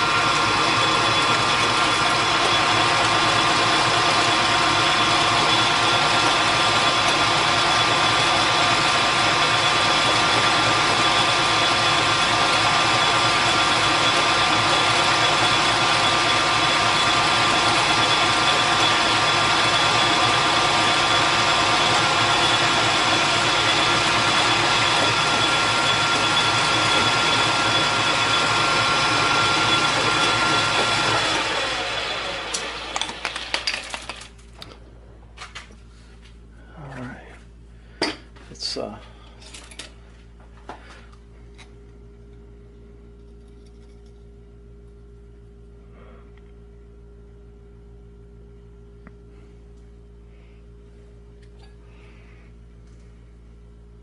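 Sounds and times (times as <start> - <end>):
machine tool motor and gear whine: 0.0 - 33.9.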